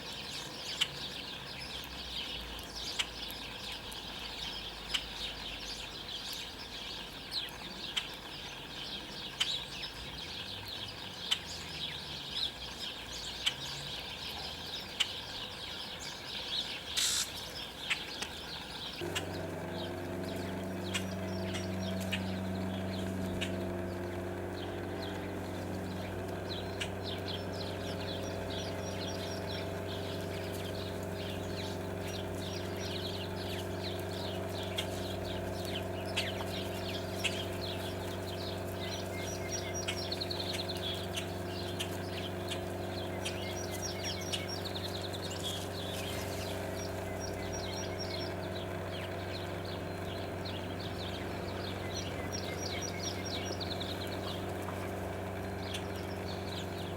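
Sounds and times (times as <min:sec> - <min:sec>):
songbirds chirping: 0:00.0 - 0:56.9
steady low hum: 0:18.9 - 0:56.9.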